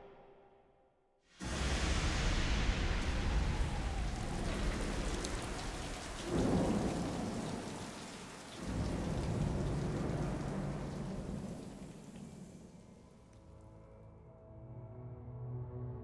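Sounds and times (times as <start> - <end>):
rolling thunder: 1.4 - 12.7
steady rain: 1.4 - 13.4.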